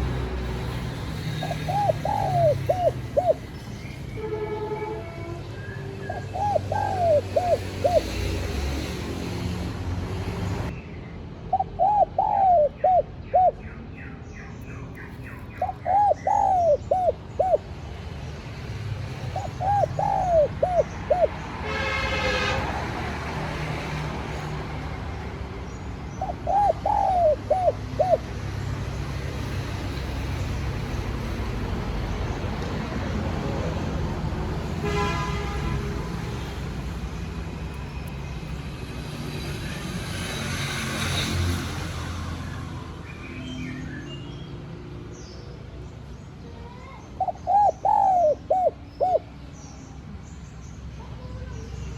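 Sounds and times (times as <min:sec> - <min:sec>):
dove cooing: 0:01.2 - 0:03.6, 0:06.1 - 0:08.8, 0:11.5 - 0:13.7, 0:15.4 - 0:17.8, 0:19.2 - 0:21.8, 0:26.1 - 0:28.4, 0:46.8 - 0:49.4.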